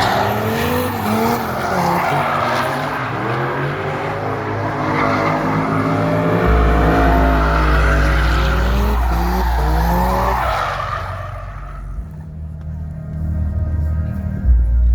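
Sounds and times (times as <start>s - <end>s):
car engine revving: 0.0s - 13.5s.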